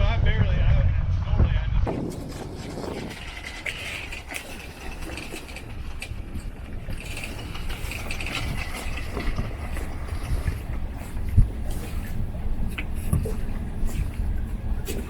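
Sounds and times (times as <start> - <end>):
boat engine droning: 1.9 - 15.0
deck hardware clicking and ratcheting: 2.8 - 10.1.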